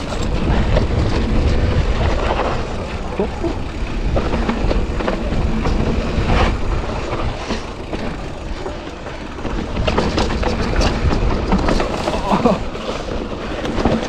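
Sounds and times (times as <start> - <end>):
bike chain and frame rattling: 0.0 - 14.0
bike tyres on rock and dirt: 0.0 - 14.0
wind rumbling on microphone: 0.0 - 14.0.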